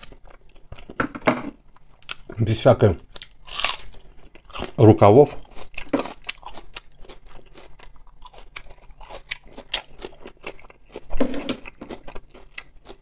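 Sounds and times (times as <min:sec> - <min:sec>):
crisp crunching of salad: 0:03.1 - 0:13.0.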